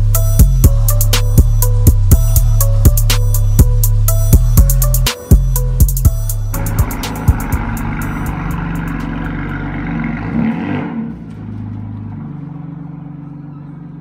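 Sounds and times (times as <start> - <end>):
car engine pulling away: 3.7 - 14.0.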